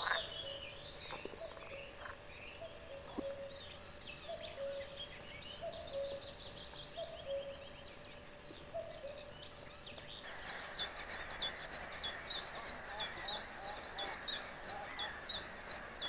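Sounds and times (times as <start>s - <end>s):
songbirds chirping and calling: 0.0s - 16.0s.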